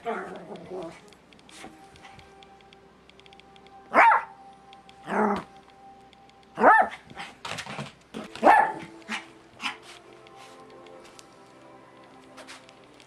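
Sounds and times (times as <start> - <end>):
dog barking: 3.9 - 4.3, 6.6 - 7.3, 8.4 - 9.8.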